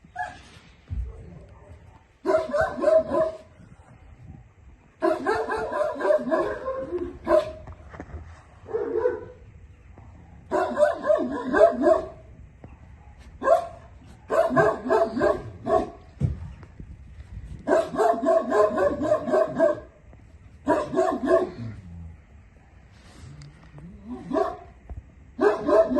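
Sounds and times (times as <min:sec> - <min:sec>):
puppy barking: 0:01.6 - 0:03.5, 0:05.0 - 0:07.6, 0:08.7 - 0:09.4, 0:10.5 - 0:12.2, 0:13.0 - 0:16.0, 0:17.7 - 0:19.9, 0:20.6 - 0:21.6, 0:24.1 - 0:24.7, 0:25.4 - 0:25.9.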